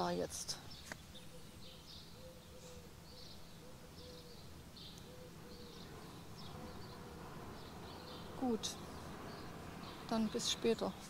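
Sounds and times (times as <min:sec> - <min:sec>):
bird chirping: 0:00.0 - 0:11.0
low background rumble: 0:02.9 - 0:11.0.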